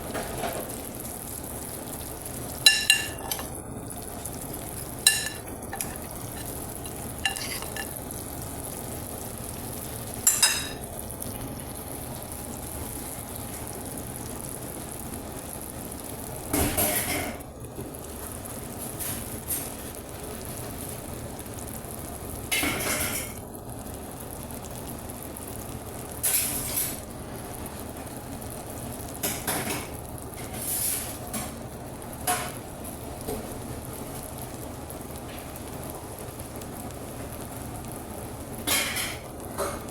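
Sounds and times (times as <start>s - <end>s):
food sizzling in a pan: 0.0s - 39.9s
utensil scraping pan: 2.7s - 3.5s, 5.0s - 8.0s.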